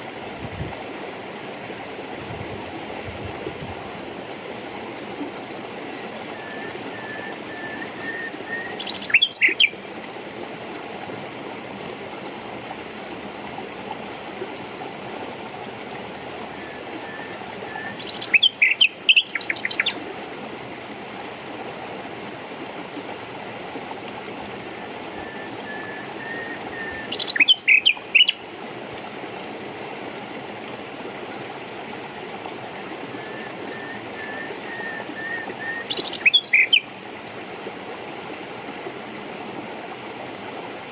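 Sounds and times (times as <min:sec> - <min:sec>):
stream water rushing: 0:00.0 - 0:40.9
songbird singing: 0:06.3 - 0:09.9, 0:16.5 - 0:20.0, 0:25.1 - 0:28.5, 0:33.2 - 0:37.0.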